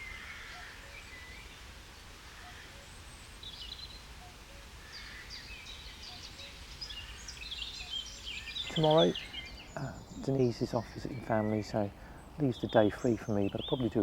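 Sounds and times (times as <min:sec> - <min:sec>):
distant cuckoo calling: 0:00.0 - 0:14.0
songbirds singing: 0:00.0 - 0:14.0.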